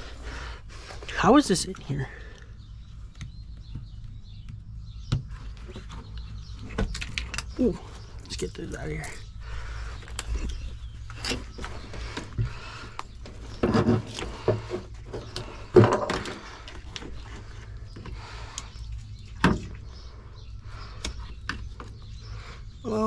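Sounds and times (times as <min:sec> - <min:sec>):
steady low hum: 0:06.3 - 0:23.0
knocks and clunks of parts: 0:06.5 - 0:09.2, 0:13.2 - 0:19.8.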